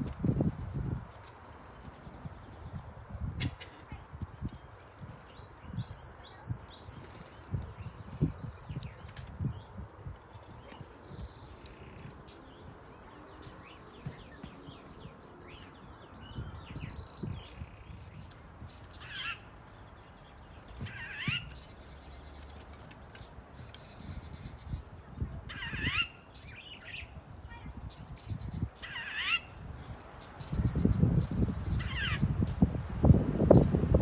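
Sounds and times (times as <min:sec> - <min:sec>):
songbirds chirping: 0:00.0 - 0:34.0
loud sweeping bird calls: 0:10.5 - 0:32.4.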